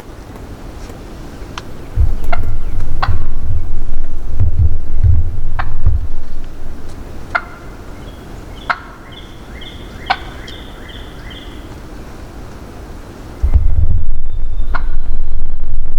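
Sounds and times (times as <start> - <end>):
wind buffeting microphone: 1.1 - 8.2, 13.3 - 15.9
wild turkey gobbling: 1.8 - 4.4, 5.0 - 11.8.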